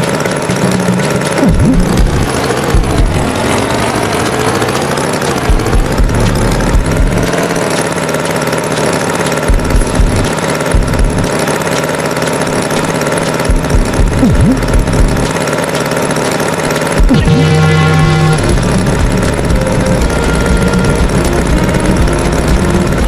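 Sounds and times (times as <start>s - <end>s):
low engine knocks: 0.0s - 11.6s, 12.5s - 15.4s
tractor engine running: 0.0s - 23.0s.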